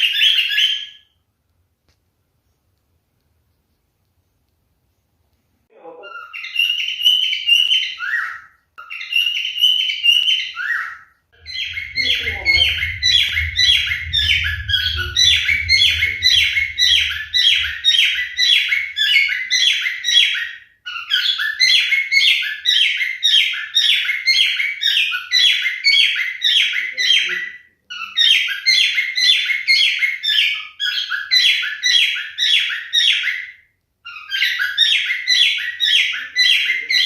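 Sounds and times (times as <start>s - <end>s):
low rumble: 11.4s - 19.7s.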